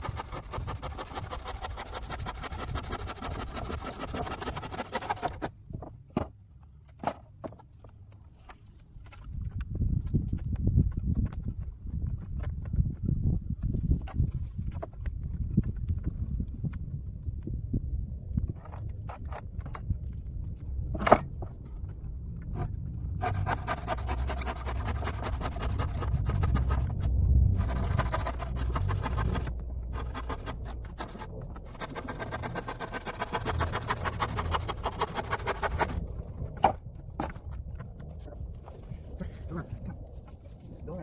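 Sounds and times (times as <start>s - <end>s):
animal panting rapidly: 0.0s - 5.5s, 23.2s - 36.2s
low rumble: 9.4s - 41.0s.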